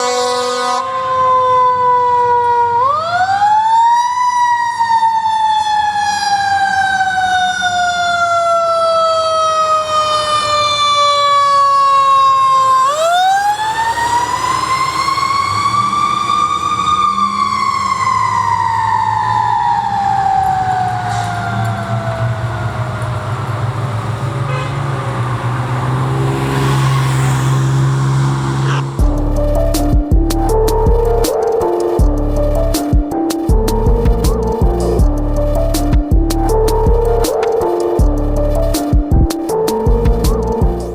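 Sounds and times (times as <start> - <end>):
fire engine siren wailing: 0.0 - 40.9
low engine rumble: 17.6 - 40.9.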